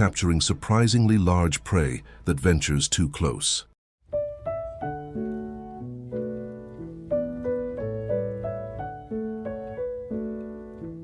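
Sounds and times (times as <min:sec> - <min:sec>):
calm solo piano: 0:04.1 - 0:11.0.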